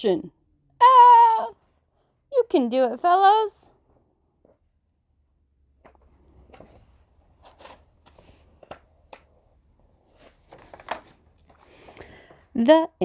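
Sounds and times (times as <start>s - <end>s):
clicks and taps of pages: 5.8s - 12.4s
paper rustling: 5.8s - 12.4s.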